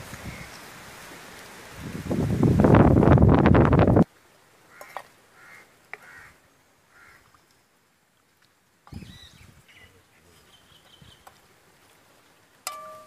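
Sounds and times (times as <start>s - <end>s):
faint bird calls: 4.7s - 7.5s, 8.9s - 11.4s.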